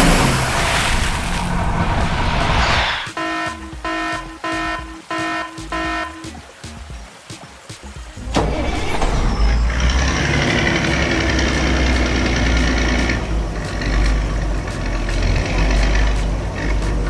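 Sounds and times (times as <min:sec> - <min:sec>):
heavy vehicle engine rumbling: 0:00.0 - 0:04.8, 0:08.2 - 0:17.0.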